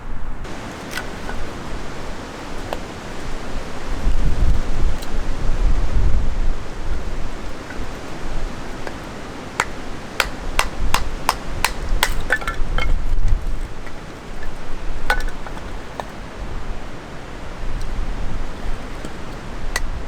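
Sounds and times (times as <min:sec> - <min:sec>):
wind rumble on microphone: 0:00.0 - 0:20.0
sharp metallic knocks: 0:09.6 - 0:13.0.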